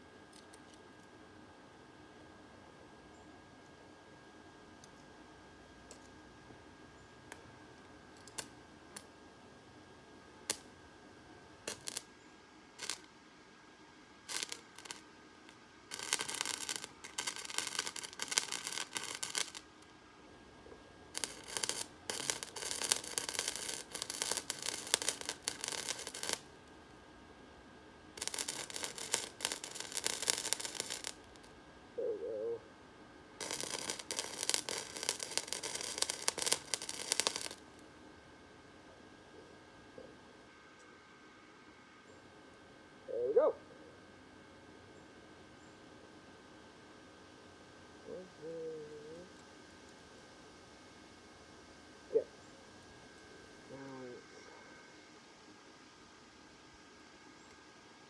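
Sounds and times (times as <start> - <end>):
welding arc crackling: 10.5 - 10.7, 11.6 - 12.1, 12.8 - 13.2, 14.2 - 19.9, 21.1 - 26.6, 28.1 - 31.6, 33.4 - 37.8.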